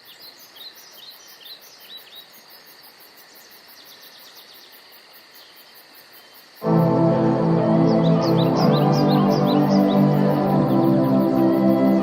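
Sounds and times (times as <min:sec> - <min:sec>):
insects pulsing: 0:00.0 - 0:12.0
birds chirping: 0:07.5 - 0:12.0.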